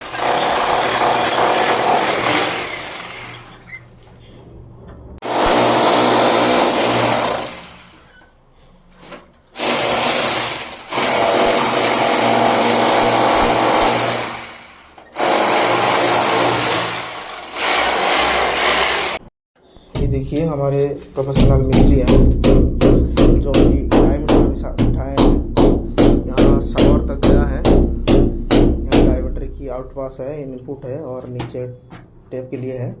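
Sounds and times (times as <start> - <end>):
power tool motor running: 0.0 - 3.7.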